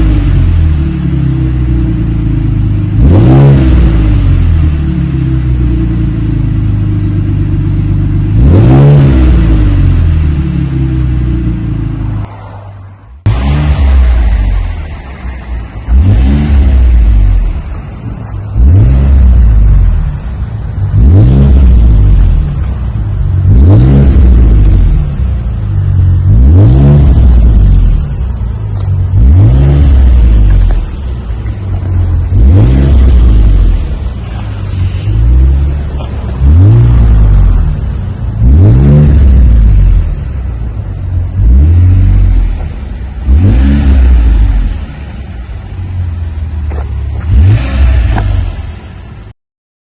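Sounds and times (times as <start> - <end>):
car engine revving: 0.0 - 49.3.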